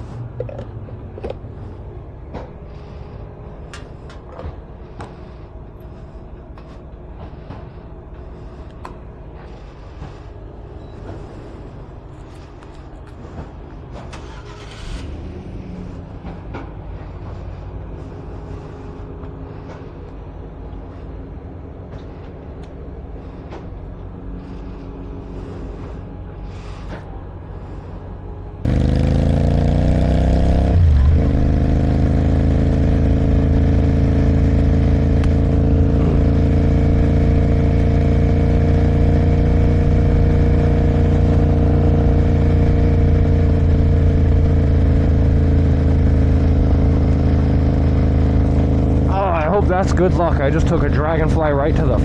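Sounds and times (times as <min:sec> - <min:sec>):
vehicle engines humming: 0:00.0 - 0:52.0.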